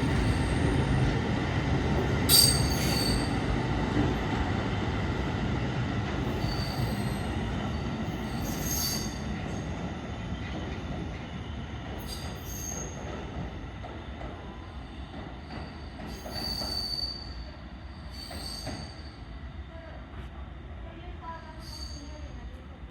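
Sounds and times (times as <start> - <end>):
subway train rumbling on rails: 0.0 - 22.9
train wheels squealing: 2.3 - 3.5, 6.3 - 9.7, 10.4 - 13.2, 14.5 - 19.4, 21.5 - 22.4.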